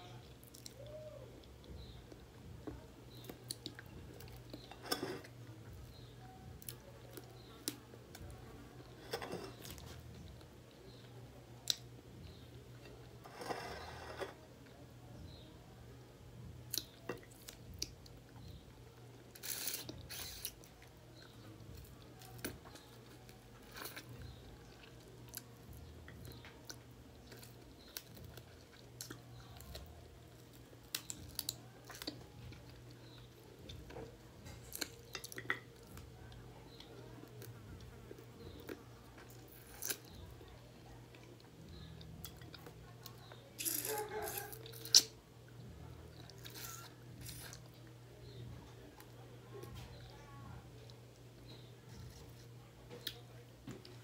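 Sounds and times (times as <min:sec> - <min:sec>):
low steady hum: 0:00.0 - 0:54.0
chewing and mouth smacks: 0:34.5 - 0:36.1.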